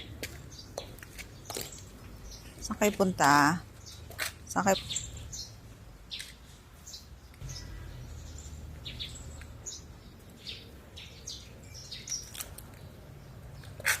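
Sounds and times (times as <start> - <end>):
small birds chirping: 0.0 - 14.0
low steady rumble: 7.4 - 10.3.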